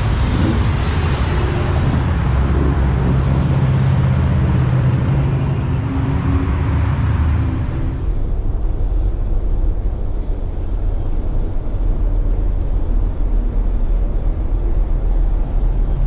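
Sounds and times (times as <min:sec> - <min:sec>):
road traffic noise: 0:00.0 - 0:16.0
vehicle engine droning: 0:00.0 - 0:16.0.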